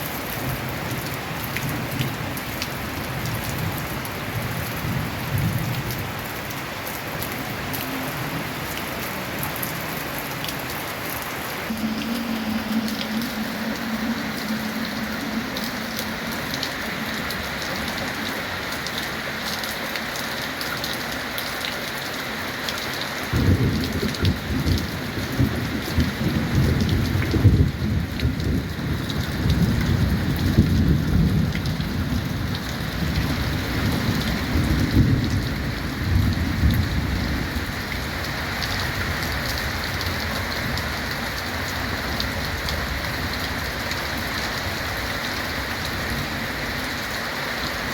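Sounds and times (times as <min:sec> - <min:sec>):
heavy rain on a tin roof: 0:00.0 - 0:47.9
rumble of thunder: 0:23.3 - 0:39.4.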